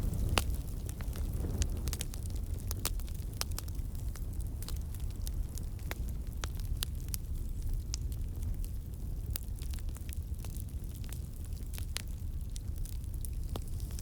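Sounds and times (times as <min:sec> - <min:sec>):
campfire burning: 0:00.0 - 0:14.0
fire crackles and pops: 0:00.0 - 0:14.0.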